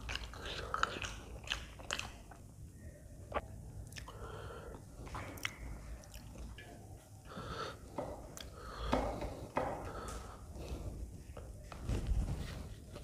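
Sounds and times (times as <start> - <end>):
close chewing mouth sounds: 0.0 - 2.5, 5.1 - 6.7.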